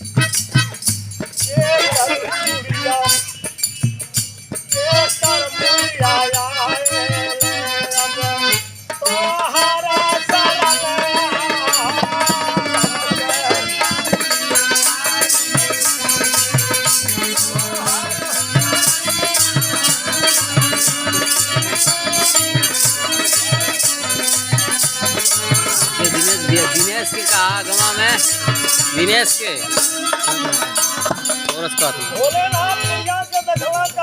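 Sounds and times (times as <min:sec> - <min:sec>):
rattling shaker rhythm: 0:00.0 - 0:34.0
hand drum beat: 0:10.0 - 0:33.9.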